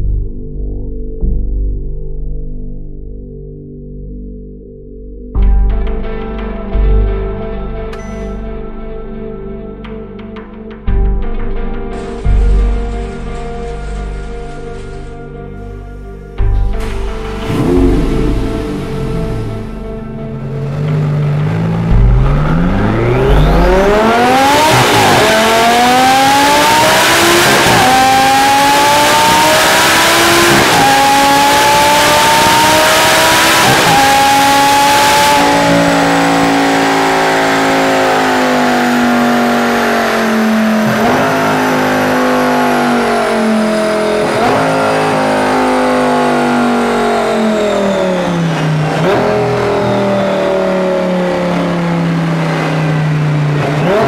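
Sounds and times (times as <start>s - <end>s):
car engine revving: 16.4s - 54.0s.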